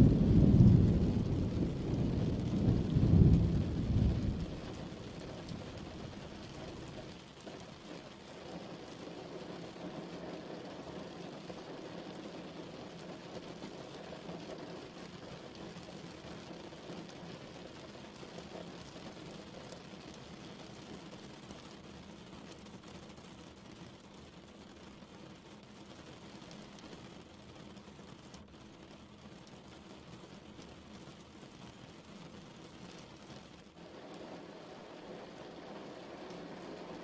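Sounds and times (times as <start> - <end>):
thunder rumbling: 0.0 - 6.4
steady rain: 0.0 - 37.0.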